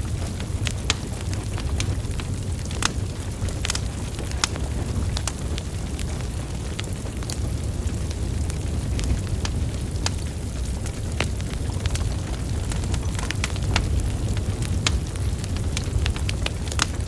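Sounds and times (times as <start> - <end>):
logs crackling and popping: 0.0 - 17.0
wood fire rumbling: 0.0 - 17.0.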